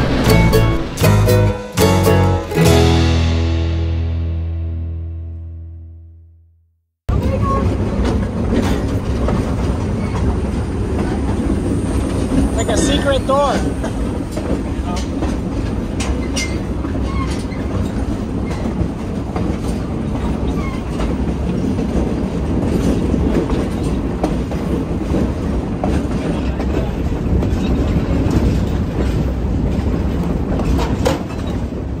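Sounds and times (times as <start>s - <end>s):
train wheels rumbling on rails: 0.0s - 2.9s, 7.1s - 32.0s
wheels clacking over track: 7.1s - 32.0s.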